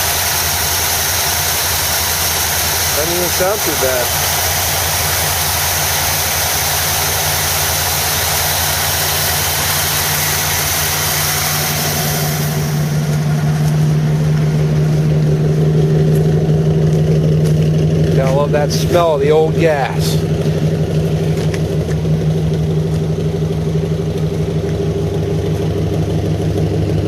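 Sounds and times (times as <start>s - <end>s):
hiss: 0.0s - 13.1s
car engine idling: 0.0s - 27.0s.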